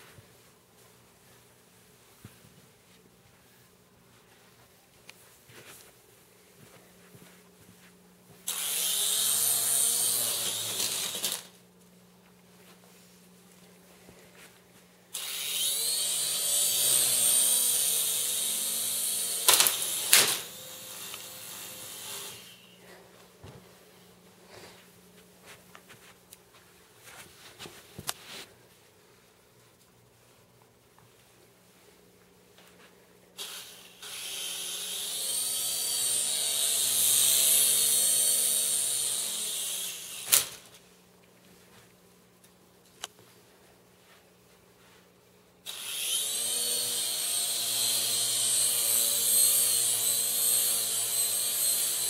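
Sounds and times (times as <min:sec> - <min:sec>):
rc helicopter motor whine: 0:08.5 - 0:11.5, 0:15.2 - 0:22.6, 0:33.4 - 0:40.6, 0:45.7 - 0:52.0.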